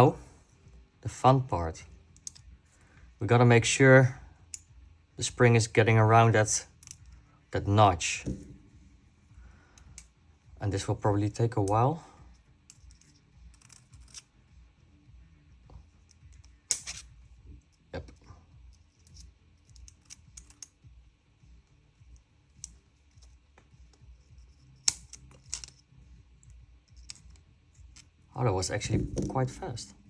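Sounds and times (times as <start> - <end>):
small parts clicking and scraping: 2.1 - 2.8, 6.7 - 7.2, 12.6 - 14.4, 15.9 - 20.8, 22.1 - 29.7.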